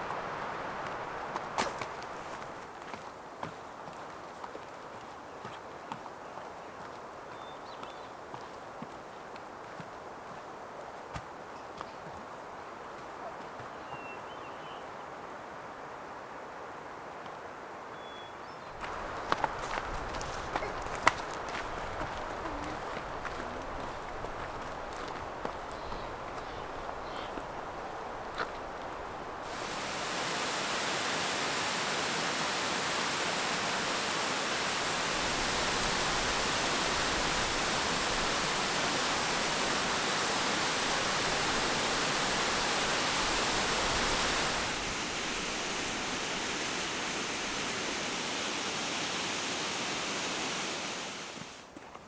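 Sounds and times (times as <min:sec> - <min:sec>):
waterfall rushing: 0:00.0 - 0:02.6, 0:18.8 - 0:51.6.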